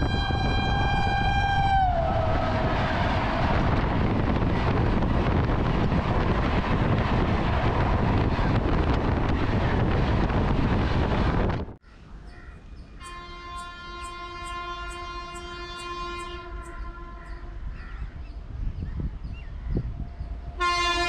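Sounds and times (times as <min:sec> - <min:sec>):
locomotive horn blast: 0:00.0 - 0:03.8, 0:13.0 - 0:17.7, 0:20.6 - 0:21.0
rush of wind and rail noise: 0:00.0 - 0:21.0.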